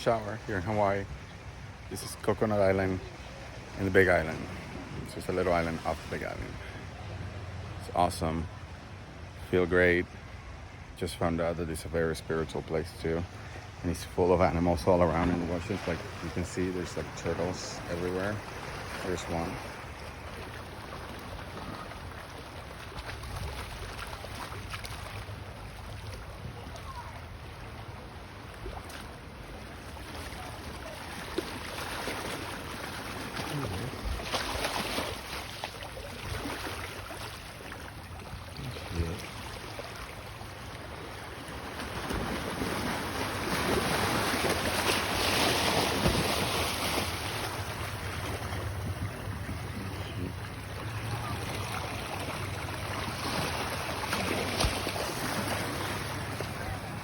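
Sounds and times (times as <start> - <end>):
ocean waves washing on shore: 0.0 - 57.0
wind buffeting microphone: 47.4 - 51.7.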